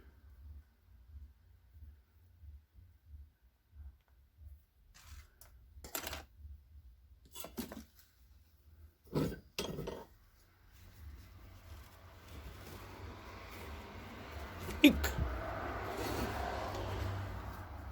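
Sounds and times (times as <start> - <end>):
metal objects clinking on surface: 5.8 - 6.3.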